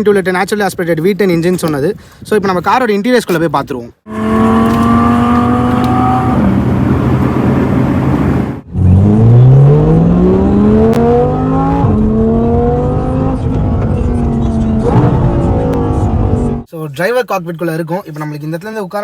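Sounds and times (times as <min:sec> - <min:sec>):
car engine accelerating hard: 0:04.1 - 0:16.7.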